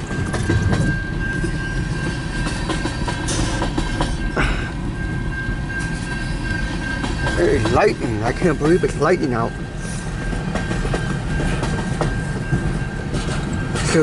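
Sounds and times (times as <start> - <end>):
freight train rumbling: 0.0 - 14.0.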